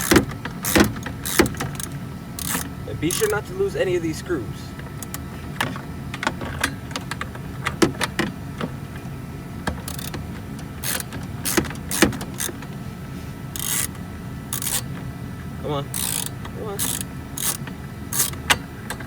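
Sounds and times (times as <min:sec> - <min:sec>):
hand tools and screws clicking: 0:00.0 - 0:03.4, 0:09.9 - 0:10.2, 0:10.8 - 0:12.6, 0:13.6 - 0:13.9, 0:14.6 - 0:14.9, 0:16.0 - 0:17.6, 0:18.2 - 0:18.5.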